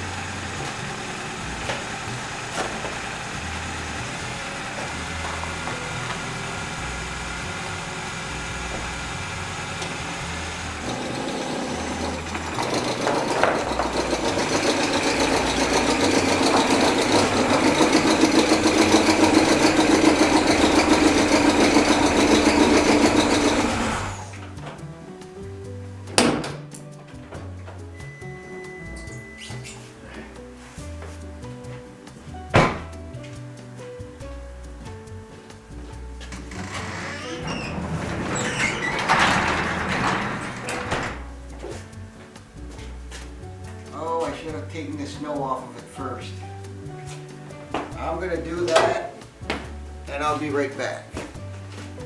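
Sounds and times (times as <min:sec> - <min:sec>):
car engine idling rough: 0:00.0 - 0:24.5.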